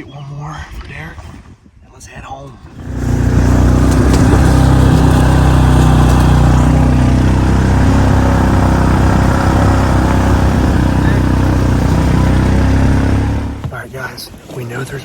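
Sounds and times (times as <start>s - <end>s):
vehicle engine running: 2.7s - 13.7s.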